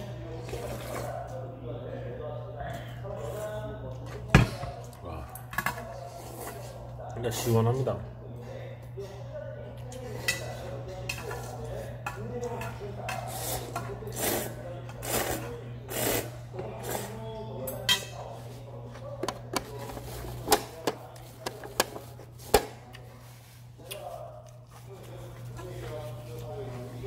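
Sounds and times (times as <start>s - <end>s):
slurping noodles and broth: 0.4s - 1.3s, 13.3s - 17.2s
utensils clinking against bowl: 9.9s - 22.6s.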